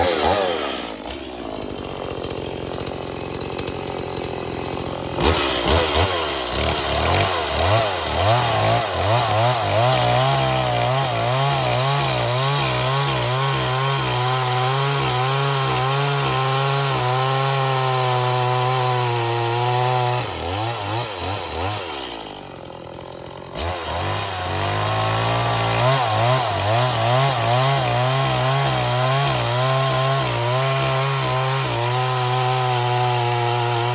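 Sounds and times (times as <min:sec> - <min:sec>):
chainsaw revving: 0:00.0 - 0:33.9.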